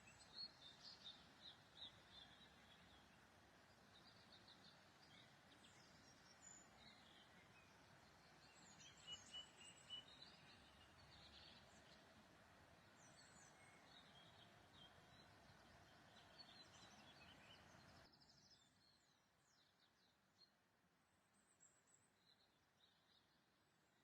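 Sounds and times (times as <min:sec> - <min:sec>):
faint songbirds chirping: 0:00.0 - 0:24.0
low background hiss: 0:00.0 - 0:24.0.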